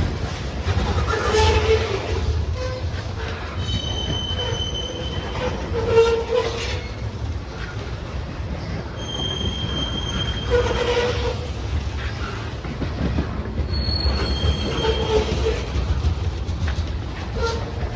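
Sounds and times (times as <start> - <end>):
freight train wheels rumbling: 0.0 - 17.9
high-pitched wheel squeal: 3.6 - 6.9, 9.0 - 12.1, 13.7 - 15.7.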